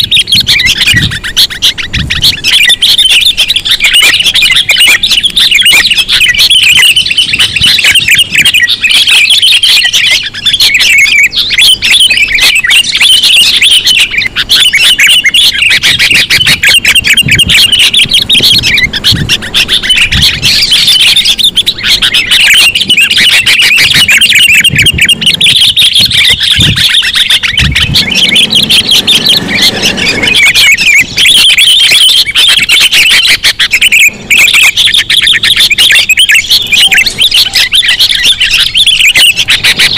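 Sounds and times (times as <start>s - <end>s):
bird chattering chirps: 0.0s - 39.9s
low thumps: 24.2s - 30.4s.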